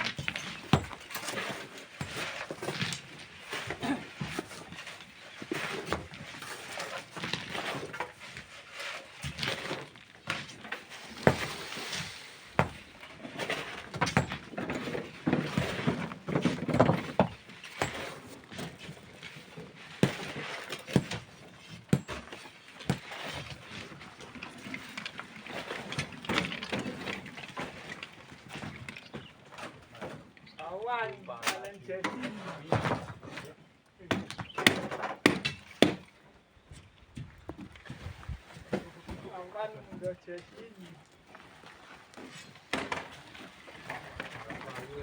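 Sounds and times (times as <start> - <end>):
hand tools scraping sand and stone: 0.1 - 28.8.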